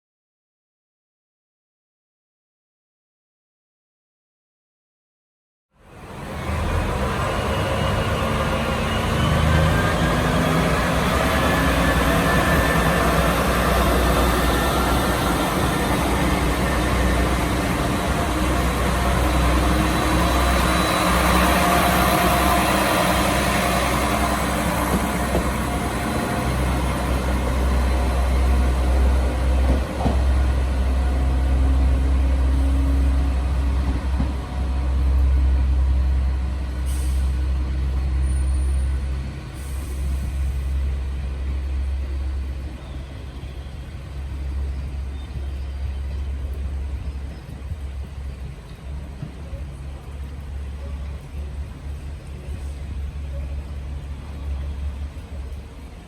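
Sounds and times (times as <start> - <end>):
train low rumble: 5.8 - 56.0
air brake hisses: 36.8 - 37.4.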